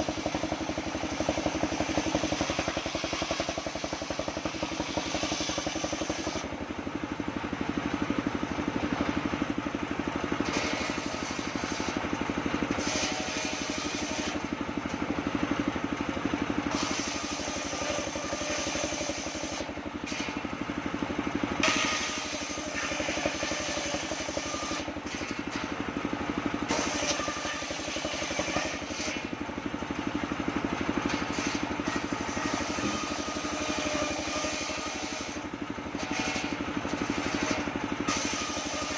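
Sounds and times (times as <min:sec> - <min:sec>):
saw blade ripping wood: 0:00.0 - 0:06.5, 0:10.4 - 0:12.0, 0:12.6 - 0:14.5, 0:16.7 - 0:20.4, 0:21.6 - 0:25.7, 0:26.7 - 0:29.3, 0:31.0 - 0:38.9
sawmill engine running: 0:00.0 - 0:38.9.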